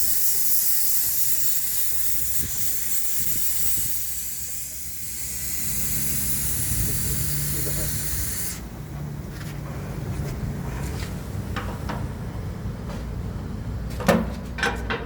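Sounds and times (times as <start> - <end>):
pressurized fluid hissing through pipes: 0.0 - 8.7.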